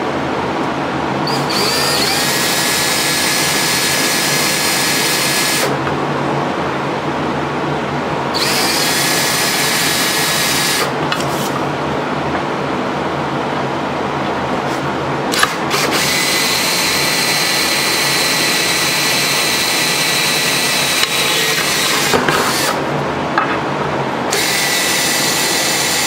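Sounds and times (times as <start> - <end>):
steady hum: 0.0 - 26.0
power tool cutting aluminium: 1.3 - 5.8, 8.3 - 11.6, 15.3 - 22.9, 24.3 - 26.0.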